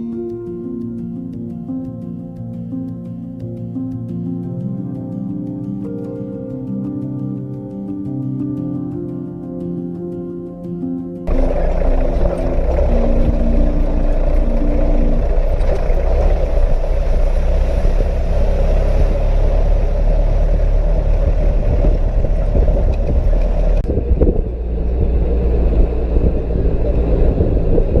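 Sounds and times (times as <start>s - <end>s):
road noise: 11.3s - 28.0s
vehicle engine rumble: 11.3s - 28.0s.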